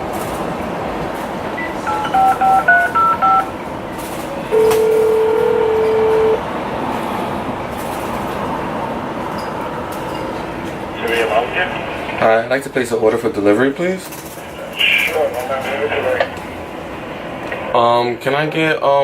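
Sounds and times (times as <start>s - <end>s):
ringback tone: 1.6s - 3.5s, 4.5s - 6.4s
telephone keypad beeps: 1.6s - 3.5s, 4.5s - 6.4s.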